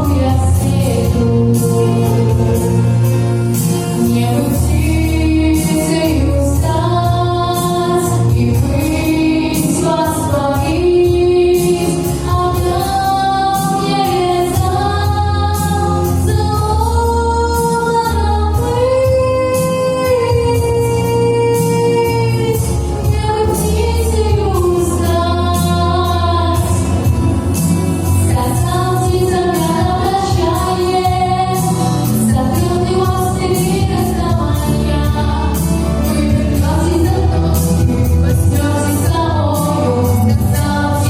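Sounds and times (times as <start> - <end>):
backing track with bass and drums: 0.0 - 41.0
woman singing pop ballad: 0.0 - 41.0.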